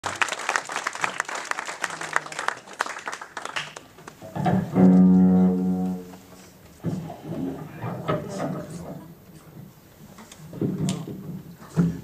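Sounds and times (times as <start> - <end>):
audience clapping: 0.0 - 4.2
held instrumental note: 4.8 - 6.2.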